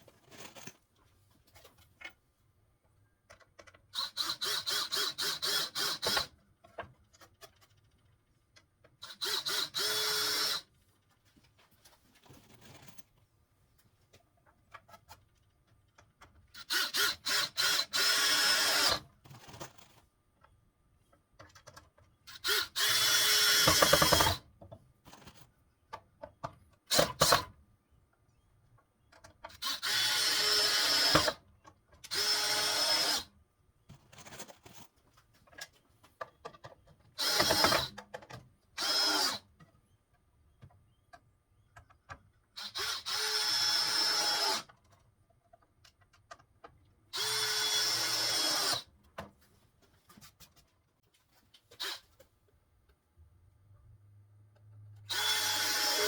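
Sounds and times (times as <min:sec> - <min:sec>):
power drill driving screws into wood: 0:04.0 - 0:06.3, 0:09.0 - 0:10.7, 0:16.6 - 0:19.1, 0:22.3 - 0:24.4, 0:26.9 - 0:27.5, 0:29.5 - 0:31.4, 0:32.1 - 0:33.3, 0:37.2 - 0:38.0, 0:38.8 - 0:39.4, 0:42.6 - 0:44.7, 0:47.1 - 0:48.9, 0:51.8 - 0:52.0, 0:55.1 - 0:56.0.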